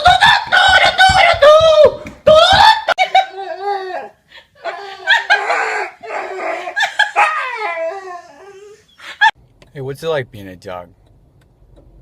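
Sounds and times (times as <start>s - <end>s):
dog yowling: 0.8s - 8.9s.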